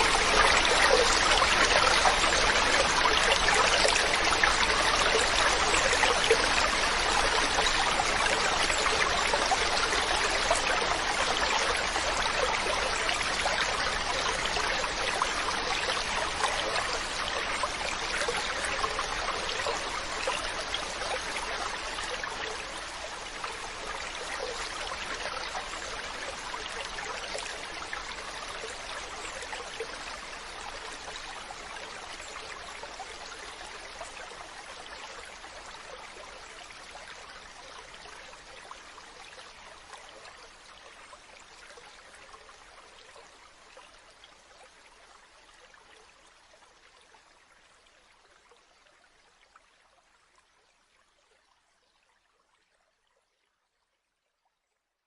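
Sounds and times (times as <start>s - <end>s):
stream water rushing: 0.0s - 41.2s.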